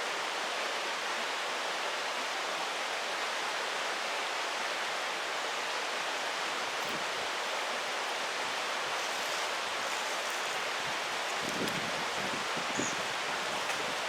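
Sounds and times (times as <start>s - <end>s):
water rushing over rocks: 6.6s - 14.0s.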